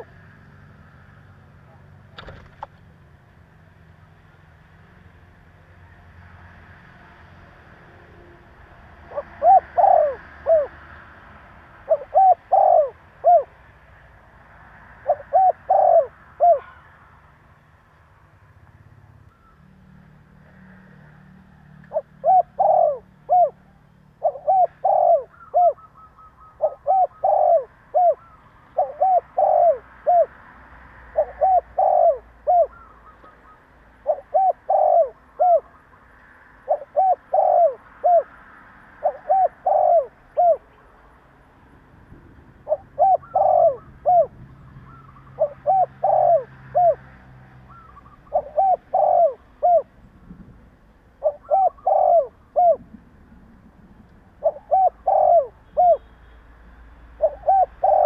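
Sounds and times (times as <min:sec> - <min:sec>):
dove cooing: 0:09.0 - 0:11.0, 0:11.7 - 0:13.6, 0:14.9 - 0:16.9, 0:20.5 - 0:30.4, 0:31.0 - 0:36.0, 0:36.6 - 0:38.4, 0:39.0 - 0:40.8, 0:42.6 - 0:47.1, 0:47.7 - 0:50.0, 0:51.2 - 0:53.0, 0:54.2 - 0:56.1, 0:57.2 - 0:58.0.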